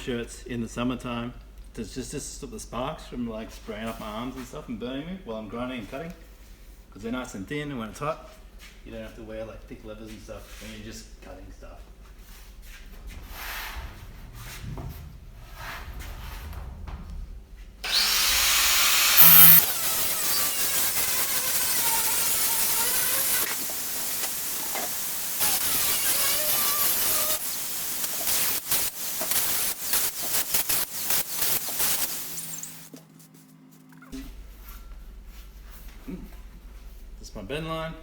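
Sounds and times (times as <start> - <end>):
angle grinder cutting sheet metal: 17.8 - 32.9.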